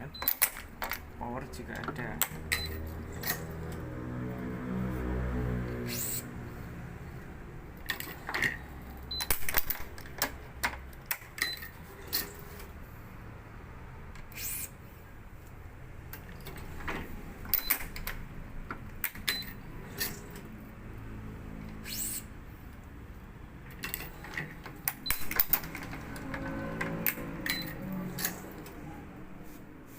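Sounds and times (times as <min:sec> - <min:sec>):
stringing machine clicks and clacks: 0:00.1 - 0:04.0, 0:23.6 - 0:28.8.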